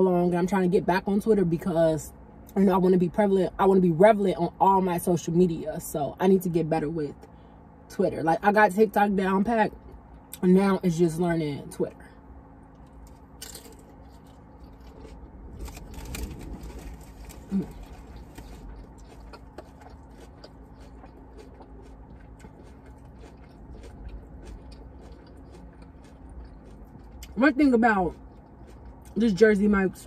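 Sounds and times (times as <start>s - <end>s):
person chewing wet clicks: 12.8s - 29.2s.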